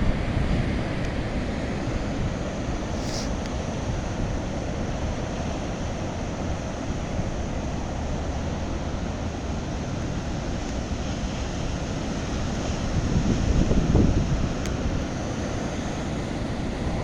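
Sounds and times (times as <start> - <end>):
ocean waves breaking: 0.0 - 17.0
wind buffeting microphone: 6.4 - 17.0.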